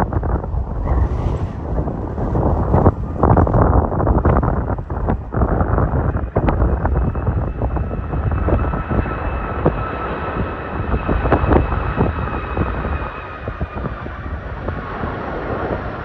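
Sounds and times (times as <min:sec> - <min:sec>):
wind buffeting microphone: 0:00.0 - 0:14.8
jet engines whining: 0:00.4 - 0:05.0.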